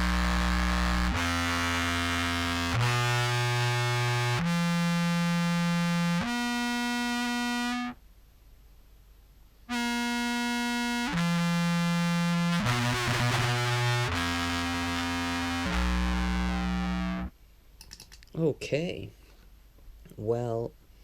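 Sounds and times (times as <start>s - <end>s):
distorted contrabass clarinet notes: 0.0s - 7.9s, 9.7s - 17.3s.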